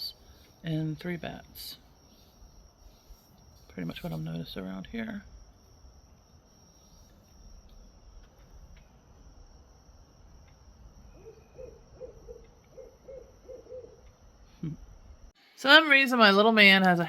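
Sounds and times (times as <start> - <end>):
owl hooting: 11.1 - 14.1.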